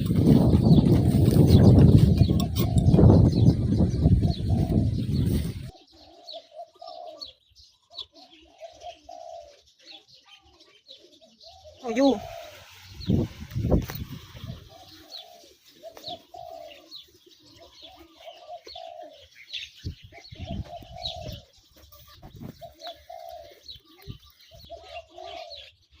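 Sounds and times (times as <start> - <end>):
doves cooing: 0.0 - 26.0
small birds chirping: 0.0 - 26.0.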